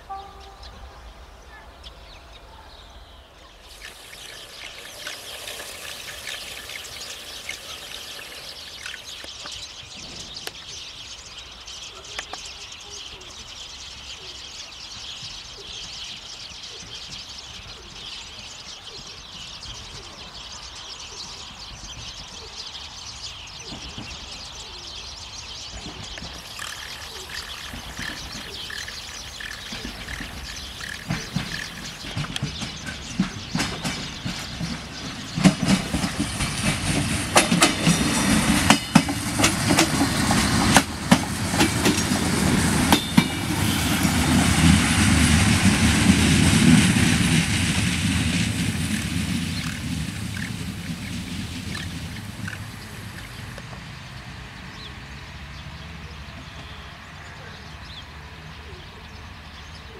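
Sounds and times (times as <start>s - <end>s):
train engine rumble: 0.0s - 11.4s, 22.8s - 59.9s
wheels clicking over rail joints: 3.6s - 10.8s, 23.6s - 53.9s.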